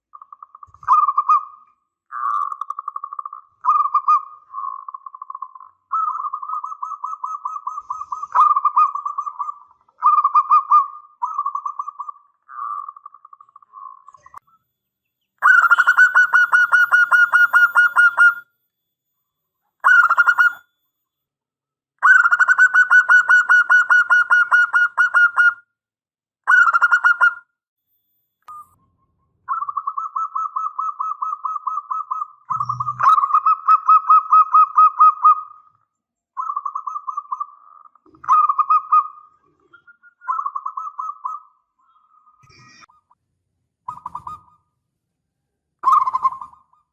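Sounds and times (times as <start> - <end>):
dove cooing: 0.6 - 14.4, 15.4 - 18.4, 29.5 - 35.7, 36.4 - 42.2, 43.9 - 44.5, 45.8 - 46.8.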